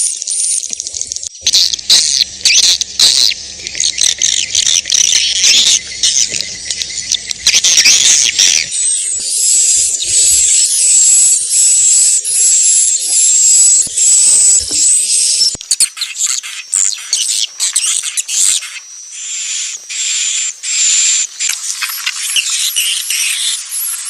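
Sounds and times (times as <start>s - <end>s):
swiftlets twittering: 0.0s - 15.8s.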